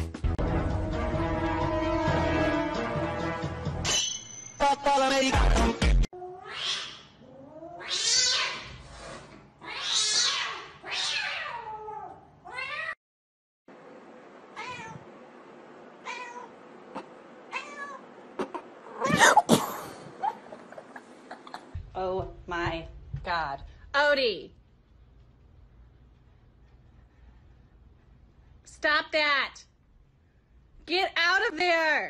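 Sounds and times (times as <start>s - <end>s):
cat meowing: 6.2s - 8.7s, 9.6s - 13.0s, 14.6s - 15.1s, 16.0s - 16.6s, 17.5s - 18.1s.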